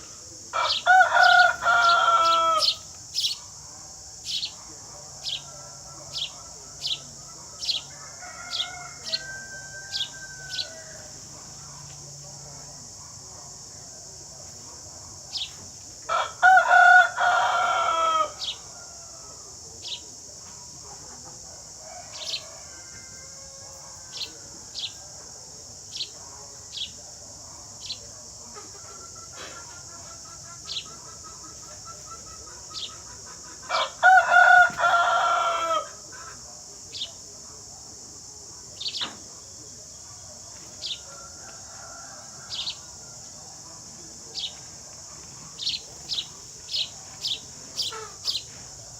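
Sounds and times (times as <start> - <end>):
rooster crowing: 0.6 - 2.8, 5.2 - 11.2, 16.1 - 19.5, 21.7 - 25.0, 33.7 - 36.1, 40.8 - 43.3
sparrows chirping: 0.7 - 7.9, 8.5 - 10.9, 15.0 - 15.7, 18.4 - 18.7, 19.8 - 20.1, 22.1 - 22.4, 25.8 - 27.0, 27.8 - 28.1, 29.2 - 33.4, 38.8 - 39.1, 40.8 - 41.1, 42.5 - 42.9, 44.3 - 44.7, 45.5 - 48.6.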